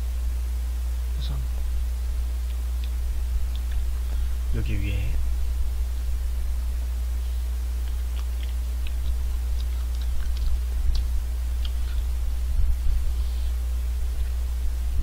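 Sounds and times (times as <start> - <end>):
low electrical hum: 0.0 - 15.0
biting and chewing ice cream cone: 7.7 - 12.8.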